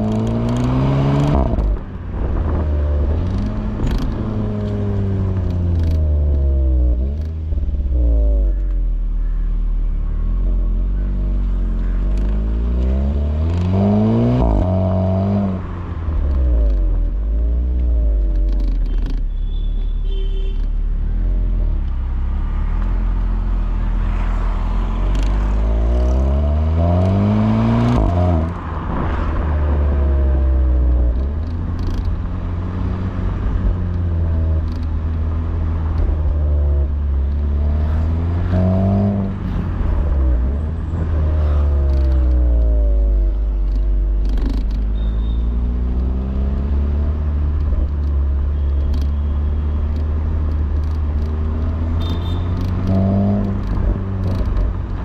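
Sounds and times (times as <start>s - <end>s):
car engine accelerating: 20.8s - 55.0s.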